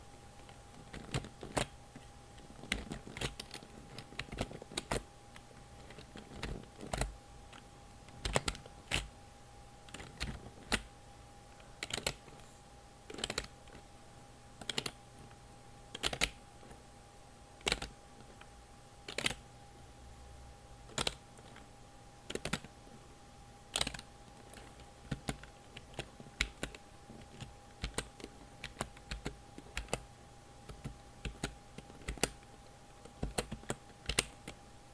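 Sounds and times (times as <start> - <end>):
faint steady hum: 0.0 - 34.9
computer keyboard keys clicking: 0.4 - 1.7, 2.4 - 5.0, 5.8 - 9.1, 9.9 - 10.9, 11.8 - 12.3, 13.1 - 13.8, 14.6 - 15.0, 15.9 - 16.4, 17.6 - 18.5, 19.1 - 19.4, 20.9 - 21.6, 22.3 - 22.7, 23.7 - 30.0, 30.6 - 34.6.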